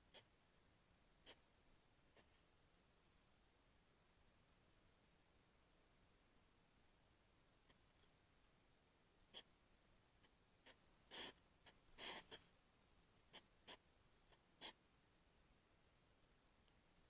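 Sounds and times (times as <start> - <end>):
hedgehog sniffing: 0.0 - 0.5, 10.2 - 12.5, 13.2 - 14.8.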